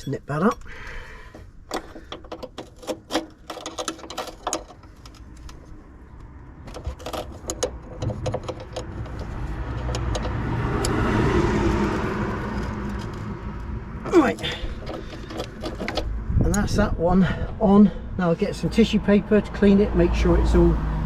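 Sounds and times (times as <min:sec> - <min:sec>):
passing car engine and tyres: 0:00.7 - 0:21.0
spanner metallic clicks and taps: 0:06.2 - 0:11.0.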